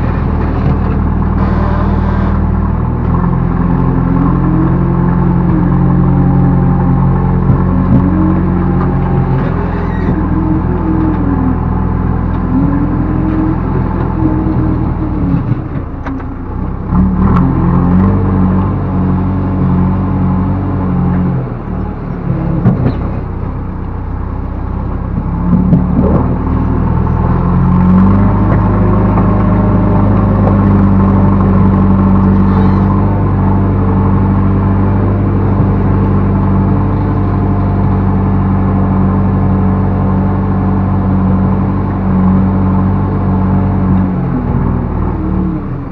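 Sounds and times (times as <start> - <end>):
diesel engine working: 0.0 - 45.9.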